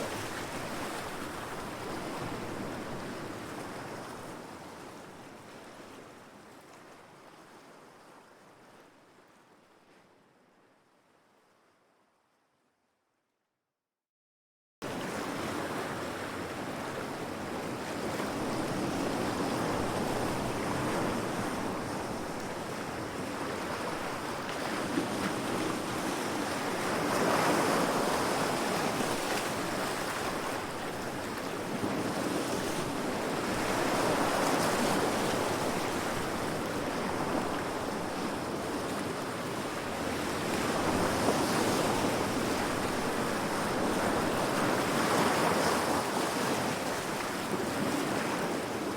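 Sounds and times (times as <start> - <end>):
sea waves breaking against rocks: 22.7 - 48.9.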